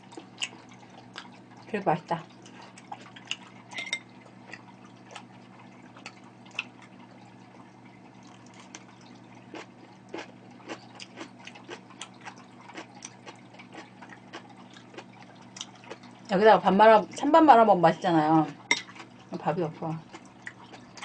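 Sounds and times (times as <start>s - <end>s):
wet chewing and mouth clicks: 0.0s - 1.7s, 2.4s - 16.3s, 20.0s - 21.0s.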